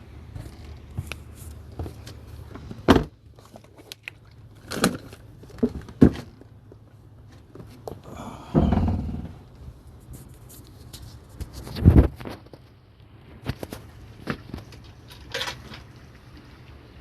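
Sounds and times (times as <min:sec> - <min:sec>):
knocks and clunks: 0:08.4 - 0:09.4.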